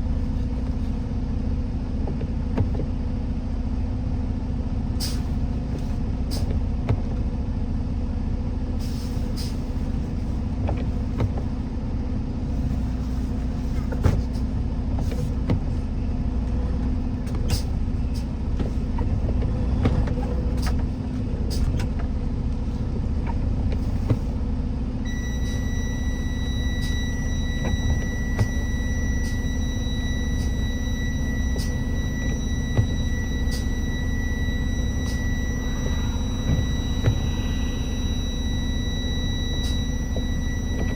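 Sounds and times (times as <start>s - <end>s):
vehicle engine and road rumble: 0.0s - 40.9s
steady high tone: 25.1s - 40.9s.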